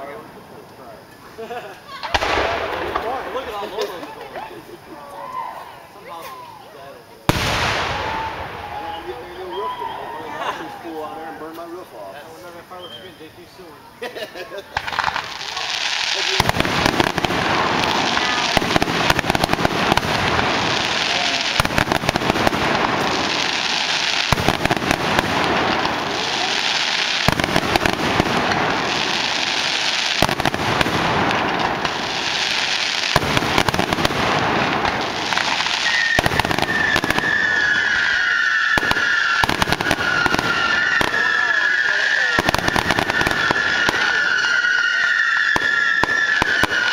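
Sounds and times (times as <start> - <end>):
fireworks crackling and popping: 0.0 - 46.9
firework whistle: 7.3 - 11.8, 12.5 - 13.5, 14.8 - 46.9.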